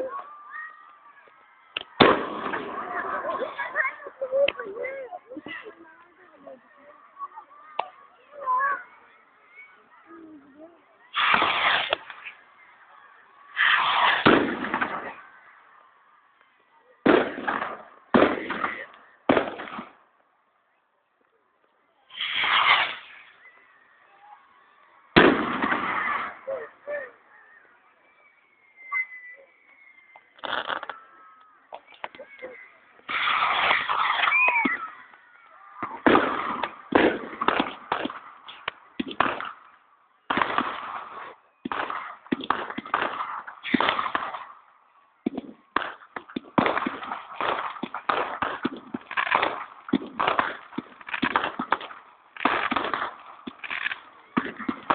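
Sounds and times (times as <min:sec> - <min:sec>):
fireworks bangs: 0:01.8 - 0:05.6, 0:11.0 - 0:12.8, 0:13.4 - 0:15.9, 0:17.0 - 0:20.1, 0:22.1 - 0:24.4, 0:25.0 - 0:27.0, 0:30.1 - 0:54.9.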